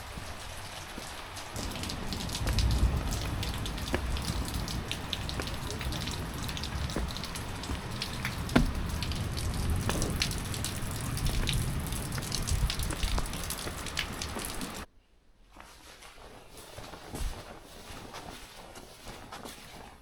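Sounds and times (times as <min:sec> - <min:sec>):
raindrops pattering and dripping: 0:00.0 - 0:14.9
steady rushing rain: 0:00.0 - 0:14.9.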